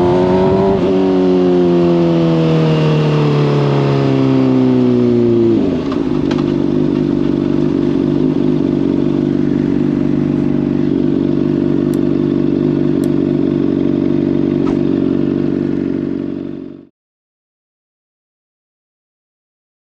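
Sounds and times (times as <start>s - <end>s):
motorcycle engine idling: 4.4s - 16.9s.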